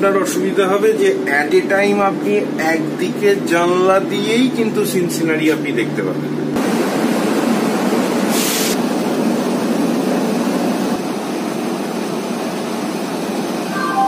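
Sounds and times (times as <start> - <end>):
brief hiss: 8.3 - 8.8.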